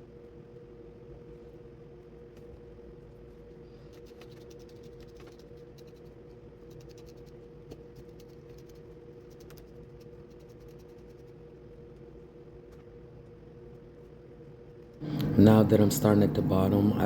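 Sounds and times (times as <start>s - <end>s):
steady low hum: 11.5s - 17.0s.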